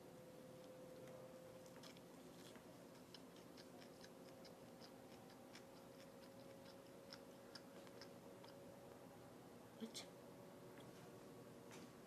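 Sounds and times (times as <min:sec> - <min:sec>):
faint steady hum: 0:00.0 - 0:12.0
person chewing food: 0:01.0 - 0:08.6.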